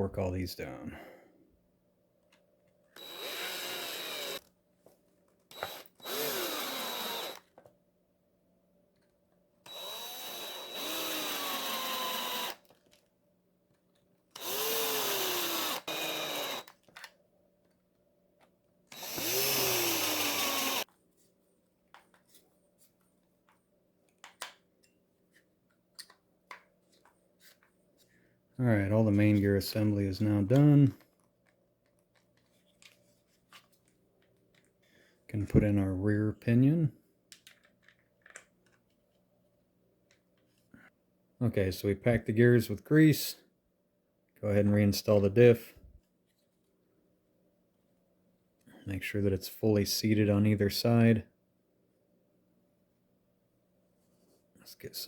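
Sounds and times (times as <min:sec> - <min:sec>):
power driver whining: 0:03.0 - 0:04.5, 0:05.5 - 0:07.5, 0:09.7 - 0:12.7, 0:14.3 - 0:17.1, 0:18.9 - 0:20.9.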